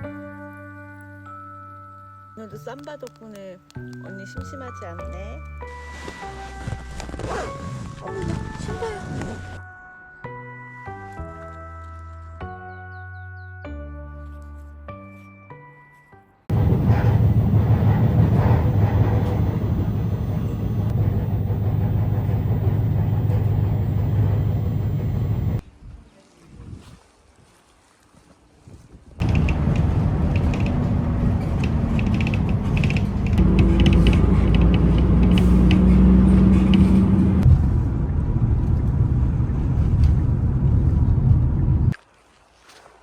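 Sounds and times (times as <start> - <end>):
low hum: 16.5 - 25.6, 29.2 - 42.0
road noise: 16.5 - 25.6, 29.2 - 41.9
vehicle engine rumble: 16.5 - 25.6, 29.2 - 41.9.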